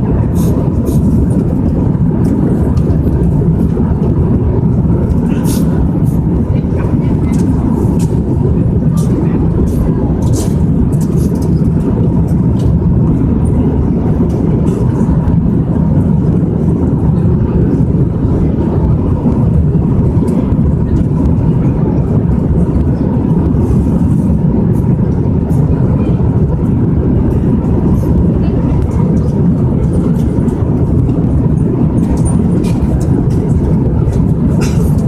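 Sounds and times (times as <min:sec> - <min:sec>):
airliner cabin rumble: 0:00.0 - 0:35.0.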